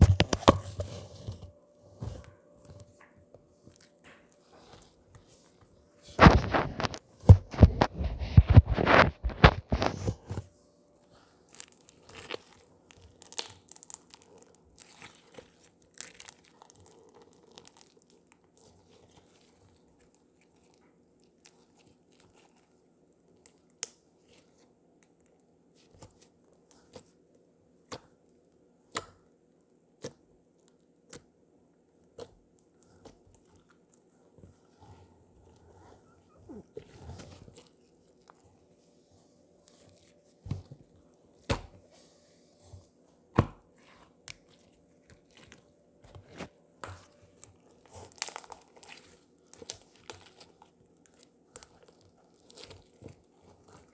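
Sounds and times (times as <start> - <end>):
slime crackling and popping: 11.5 - 20.6, 47.3 - 53.9.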